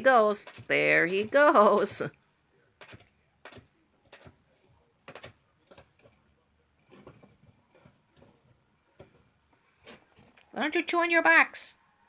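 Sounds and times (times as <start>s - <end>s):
bird pecking at carpet: 2.8s - 10.5s.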